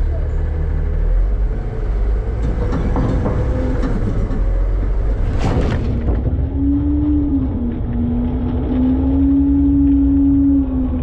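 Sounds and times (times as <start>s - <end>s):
garbage truck engine rumbling: 0.0s - 11.0s
metal hopper rattling and clanking: 2.3s - 6.5s.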